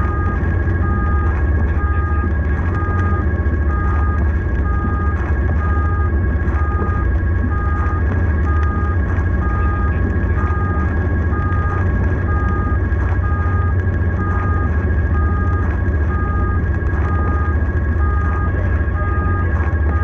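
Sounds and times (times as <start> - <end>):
engine and road rumble: 0.0 - 20.0
two-tone siren: 0.0 - 20.0.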